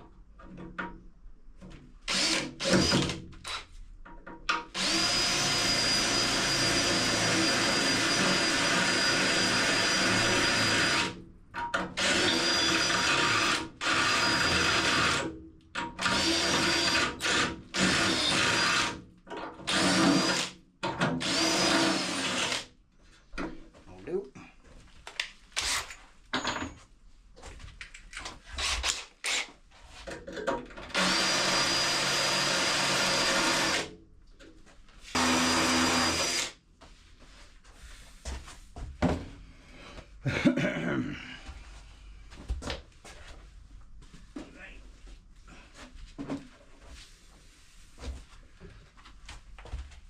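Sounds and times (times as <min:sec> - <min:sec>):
electric drill boring steel: 0:02.1 - 0:03.6, 0:04.8 - 0:11.2, 0:12.0 - 0:15.3, 0:16.0 - 0:19.0, 0:19.7 - 0:20.5, 0:21.2 - 0:22.6, 0:30.9 - 0:33.9, 0:35.2 - 0:36.6.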